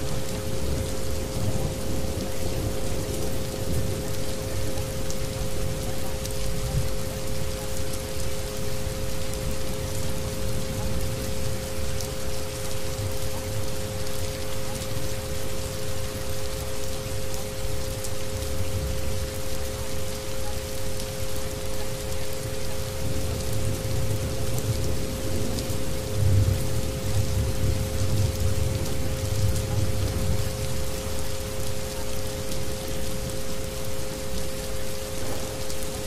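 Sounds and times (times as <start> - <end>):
steady rain: 0.0 - 36.0.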